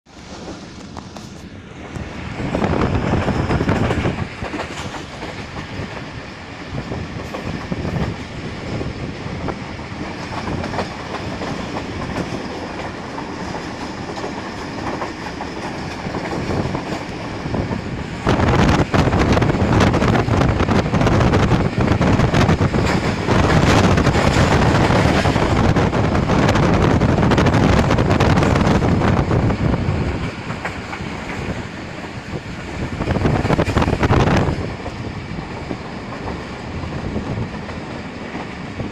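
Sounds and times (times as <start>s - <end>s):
train wheels clattering over rail joints: 0.3s - 8.4s, 10.0s - 38.9s.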